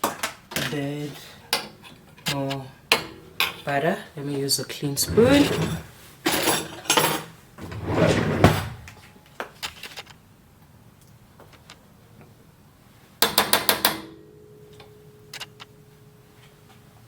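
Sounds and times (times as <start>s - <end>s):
scraping rustle: 5.0s - 6.2s, 7.6s - 9.0s
cutlery clattering in drawer: 5.0s - 8.9s
faint steady hum: 14.0s - 17.0s.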